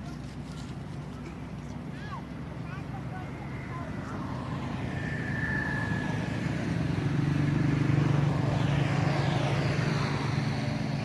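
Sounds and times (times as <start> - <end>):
vehicle engine passing by: 2.8 - 11.0.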